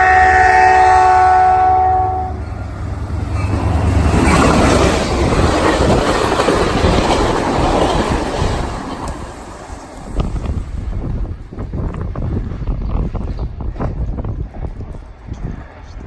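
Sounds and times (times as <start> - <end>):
train air horn chord: 0.0 - 2.4
train wheels rumbling on rails: 0.0 - 16.0.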